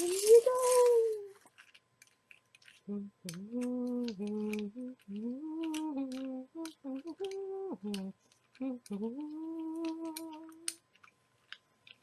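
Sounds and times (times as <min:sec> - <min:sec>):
person humming: 0:00.0 - 0:01.4, 0:02.9 - 0:10.8.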